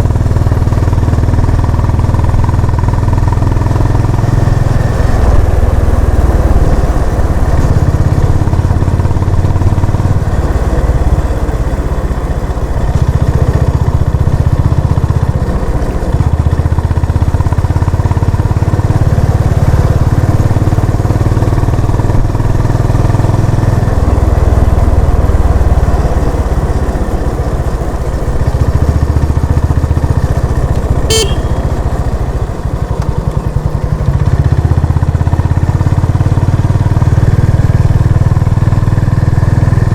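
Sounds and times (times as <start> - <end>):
motorcycle engine running: 0.0 - 39.9
short horn beep: 31.0 - 32.1.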